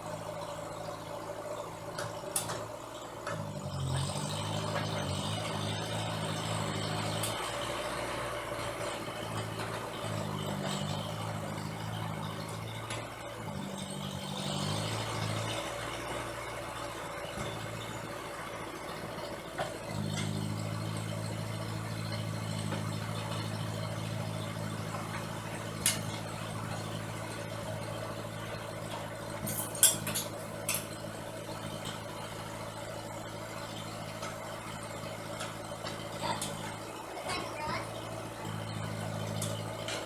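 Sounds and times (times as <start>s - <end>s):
engine idling: 0.0s - 40.0s.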